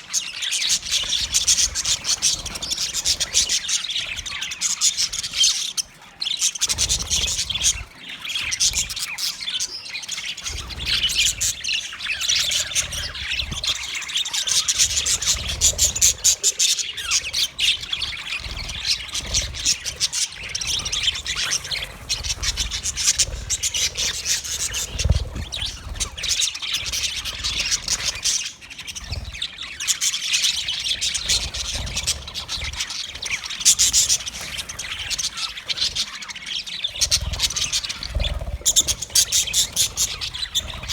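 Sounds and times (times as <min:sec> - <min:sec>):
budgerigars chirping: 0:00.0 - 0:40.9.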